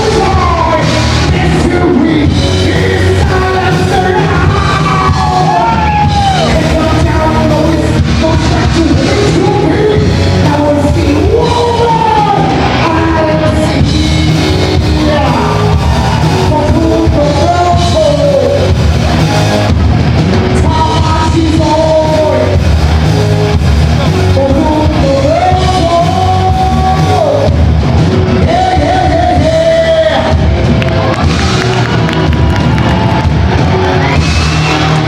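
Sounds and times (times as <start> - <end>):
lead singer singing: 0.0 - 18.8, 20.5 - 22.7, 24.1 - 27.6, 28.3 - 30.5
drums: 0.0 - 35.0
live rock band: 0.0 - 35.0.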